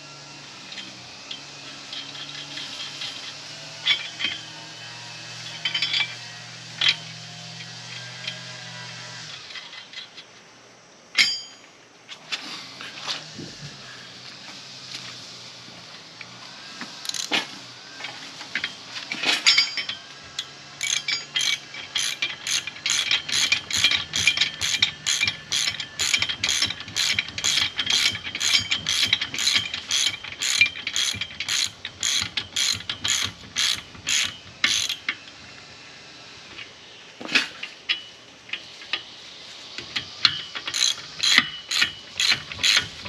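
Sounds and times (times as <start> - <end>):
ratchet wrench clicking: 17.0 - 17.4, 19.7 - 35.2, 40.2 - 43.0.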